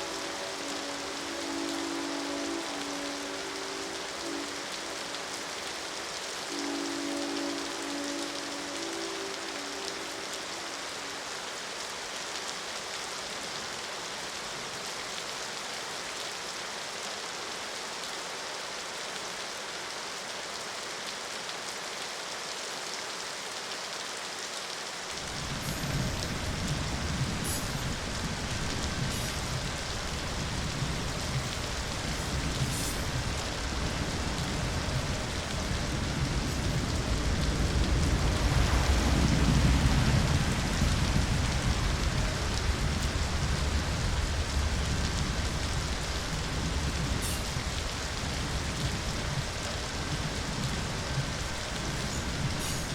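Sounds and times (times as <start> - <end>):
steady rain hiss: 0.0 - 52.9
deep low rumble: 25.3 - 52.6.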